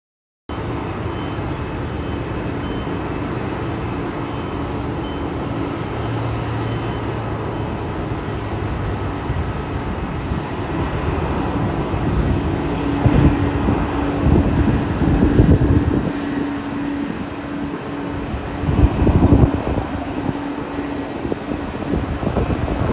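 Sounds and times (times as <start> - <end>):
constant hum: 0.5 - 22.9
jet engine and airflow rush: 0.5 - 22.9
low thumps and rumbles: 9.4 - 22.9.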